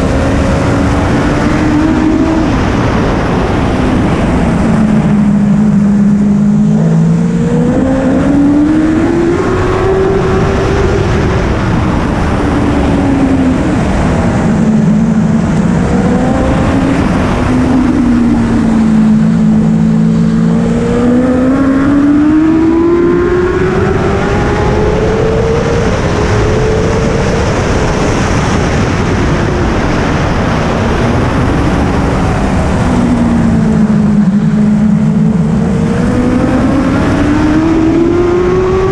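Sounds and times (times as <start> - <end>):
motorcycle engine accelerating and braking: 0.0 - 38.9.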